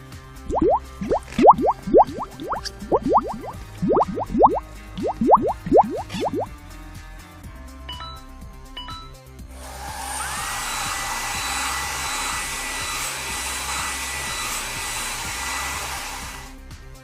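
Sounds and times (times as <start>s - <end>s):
soft background music: 0.5s - 6.5s.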